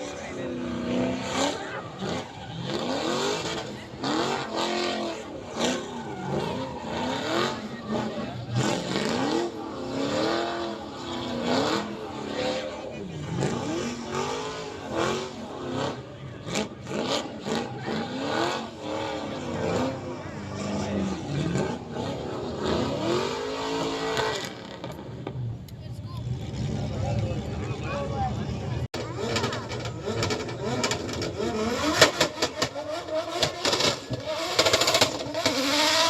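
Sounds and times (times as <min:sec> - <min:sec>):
engines revving hard: 0:00.0 - 0:36.0.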